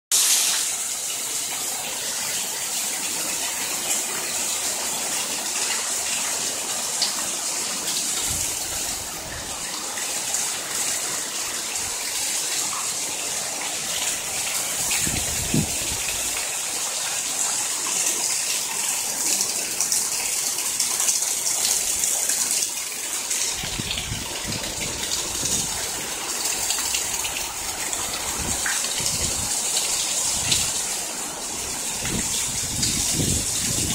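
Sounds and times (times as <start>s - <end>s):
heavy rain falling: 0.1s - 33.9s
water gushing off roof: 0.1s - 33.9s
wind rumble on microphone: 14.8s - 16.4s, 23.6s - 25.8s, 27.4s - 29.6s, 30.3s - 30.8s, 31.9s - 33.9s.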